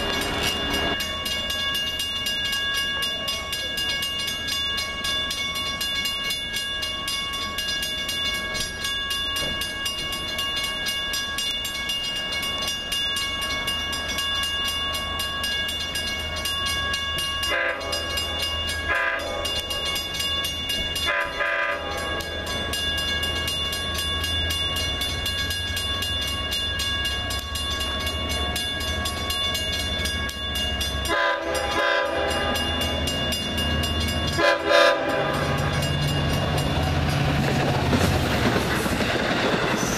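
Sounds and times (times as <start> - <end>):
train running noise: 0.0 - 39.9
train horn blasts: 17.4 - 18.2, 18.9 - 19.6, 21.0 - 22.2, 31.0 - 32.9, 34.3 - 35.9.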